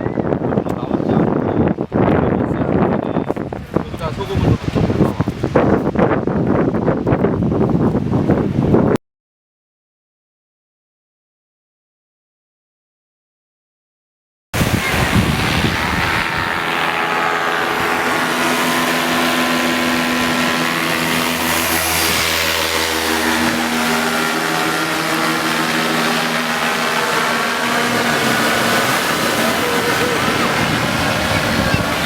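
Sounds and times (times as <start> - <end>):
engine running steadily: 14.6 - 32.0.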